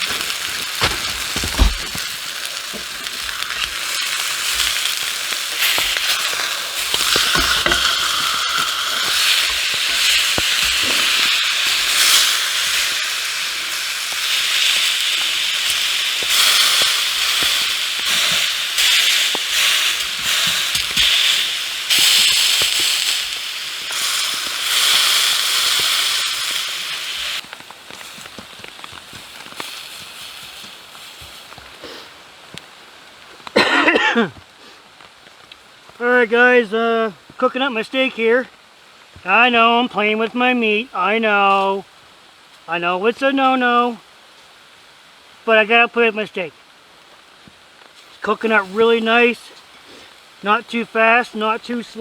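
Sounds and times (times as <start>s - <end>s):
steak sizzling in a frying pan: 0.0s - 33.9s, 46.7s - 52.0s.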